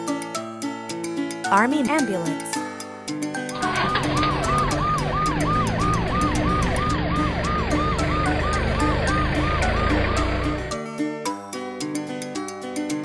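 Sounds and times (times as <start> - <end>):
ambulance siren wailing: 3.5 - 10.7.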